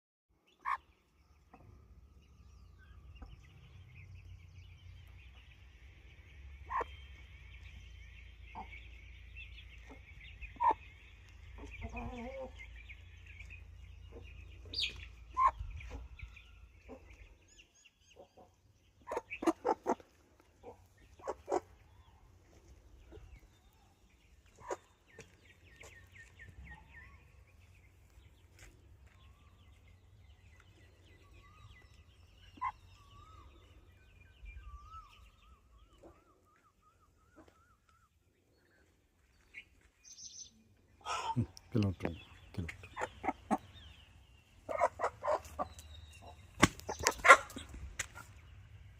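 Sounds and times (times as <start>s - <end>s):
chickens clucking: 0.6s - 1.7s, 6.6s - 7.0s, 8.4s - 17.4s, 18.1s - 28.3s, 32.2s - 33.6s, 41.0s - 48.5s.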